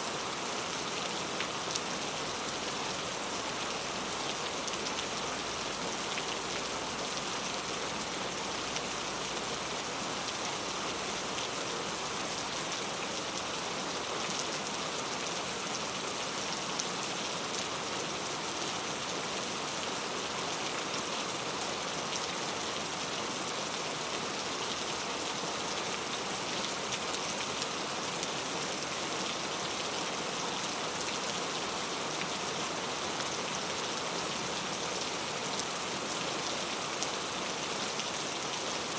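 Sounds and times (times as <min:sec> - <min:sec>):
rain pattering on a surface: 0:00.2 - 0:38.9.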